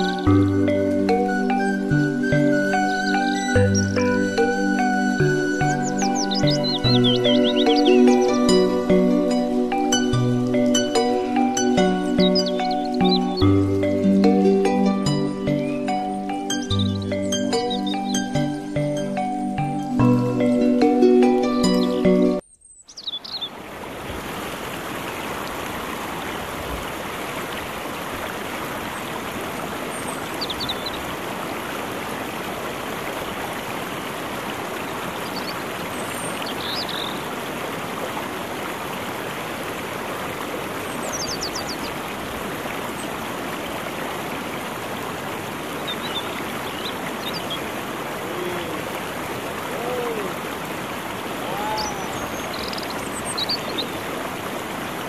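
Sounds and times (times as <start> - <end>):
river flowing over rocks: 23.5 - 55.0.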